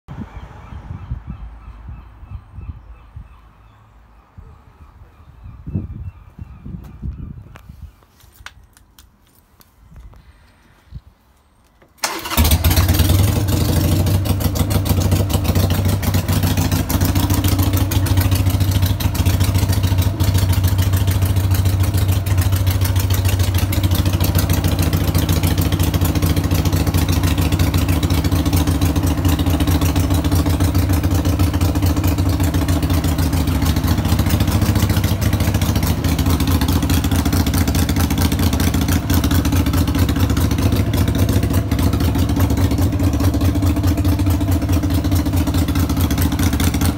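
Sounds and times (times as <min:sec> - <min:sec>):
motorcycle engine starting and idling: 0:11.8 - 0:46.9.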